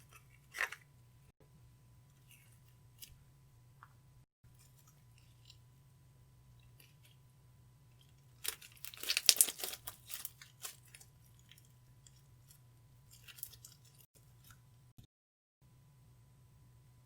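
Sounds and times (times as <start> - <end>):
slime squished by hand: 8.4 - 11.6.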